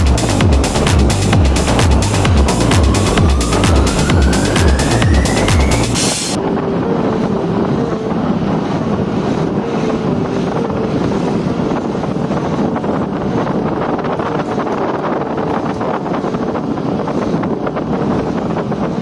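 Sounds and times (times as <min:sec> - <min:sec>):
electronic music: 0:00.0 - 0:08.2
vehicle engine and road noise: 0:00.0 - 0:19.0
wind buffeting microphone: 0:00.0 - 0:19.0.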